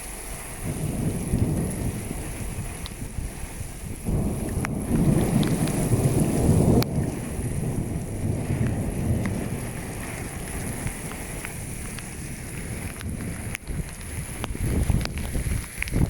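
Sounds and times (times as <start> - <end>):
rain falling: 0.0 - 16.0
wind rumbling on microphone: 0.0 - 16.0
scattered ticks: 10.4 - 12.2, 12.8 - 16.0.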